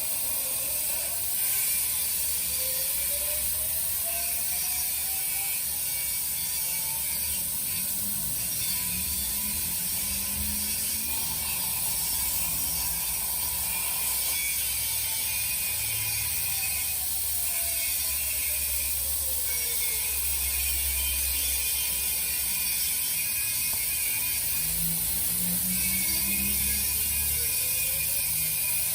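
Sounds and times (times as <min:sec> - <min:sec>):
plasma cutter hissing: 0:00.0 - 0:28.9
faint whine sliding in pitch: 0:02.2 - 0:22.4.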